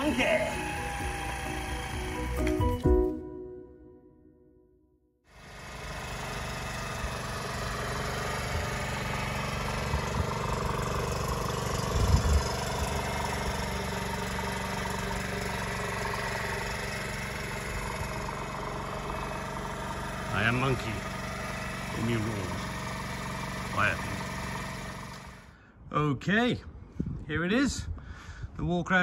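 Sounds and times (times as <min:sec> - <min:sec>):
small engine idling: 0:00.0 - 0:02.7, 0:05.3 - 0:25.8
engine knock: 0:05.5 - 0:25.5.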